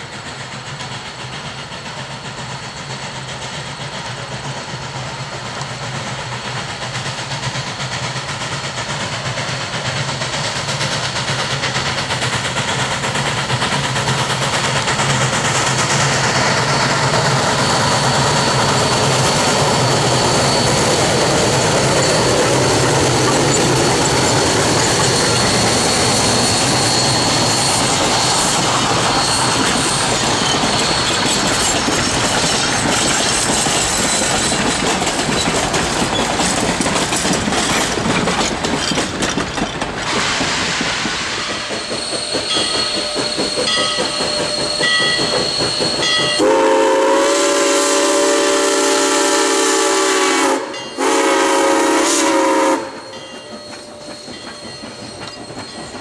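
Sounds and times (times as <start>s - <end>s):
train wheel and rail noise: 0.0s - 56.0s
train horn chord blasts: 46.4s - 53.0s.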